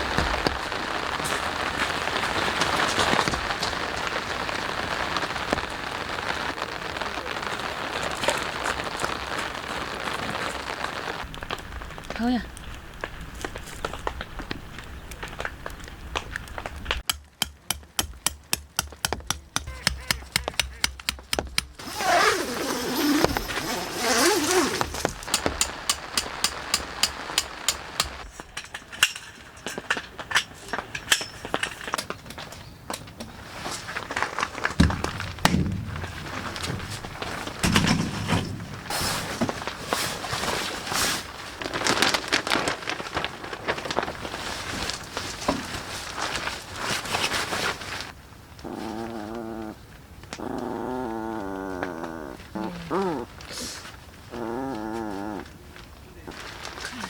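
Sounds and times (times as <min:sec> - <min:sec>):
tent pegs being hammered: 0:17.0 - 0:28.2.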